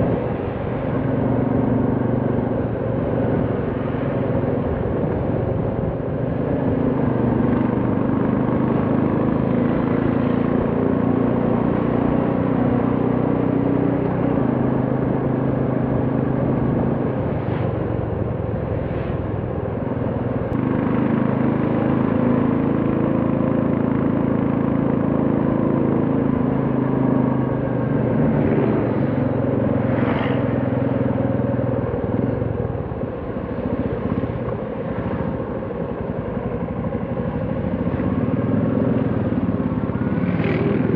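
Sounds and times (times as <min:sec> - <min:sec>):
road and wind noise: 0:00.0 - 0:40.9
motorcycle engine running: 0:20.1 - 0:40.9.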